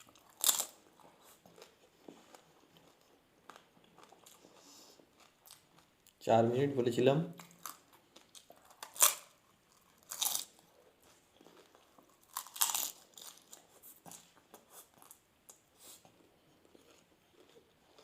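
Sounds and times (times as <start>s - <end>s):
crunchy bites: 0.0s - 0.8s, 7.4s - 10.6s, 11.6s - 14.2s
chewing: 0.0s - 6.2s, 7.4s - 18.0s.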